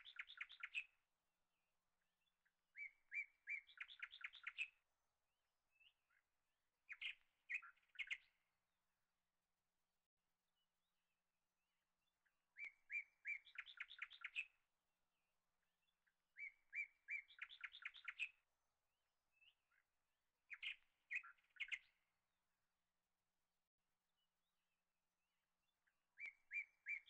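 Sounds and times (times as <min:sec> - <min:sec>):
small bird chirping and trilling: 0:00.0 - 0:00.9, 0:02.8 - 0:04.8, 0:06.9 - 0:08.3, 0:12.6 - 0:14.6, 0:16.4 - 0:18.4, 0:20.5 - 0:22.0, 0:26.2 - 0:27.0.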